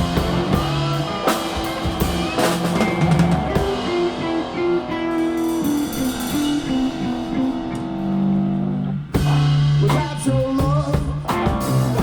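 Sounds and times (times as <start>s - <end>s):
blues-rock band playing: 0.0s - 12.0s.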